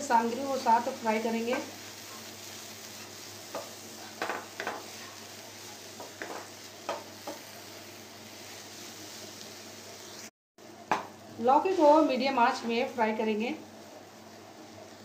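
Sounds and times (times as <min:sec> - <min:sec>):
gourd sizzling in hot oil: 0:00.0 - 0:15.0
wooden spatula scraping pan: 0:06.0 - 0:07.4.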